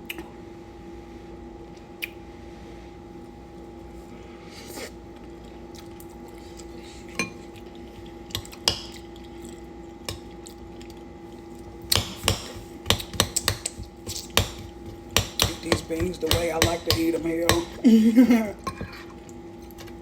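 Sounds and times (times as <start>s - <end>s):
steady hum: 0.0s - 20.0s
utensil clinking against bowl: 12.0s - 17.8s.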